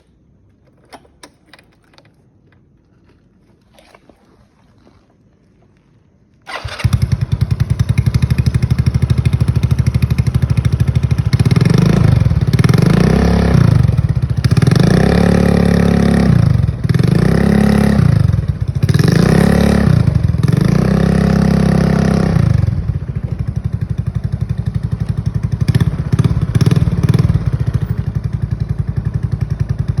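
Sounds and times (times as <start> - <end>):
motorcycle engine idling and revving: 6.5 - 30.0.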